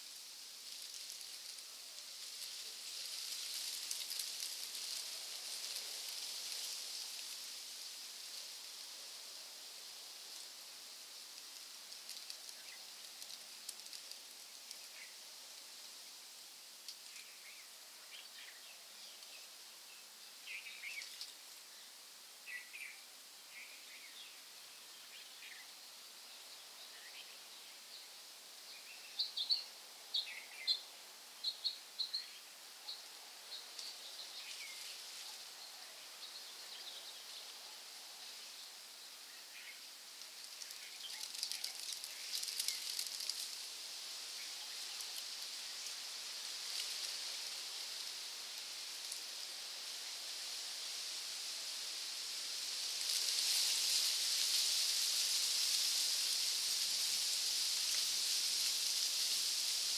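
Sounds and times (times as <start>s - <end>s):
hiss with fine pattering: 0.0s - 59.9s.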